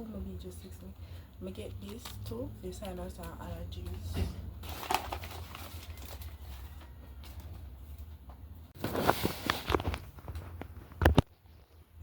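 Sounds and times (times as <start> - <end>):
small objects rustling and knocking: 4.6 - 11.7.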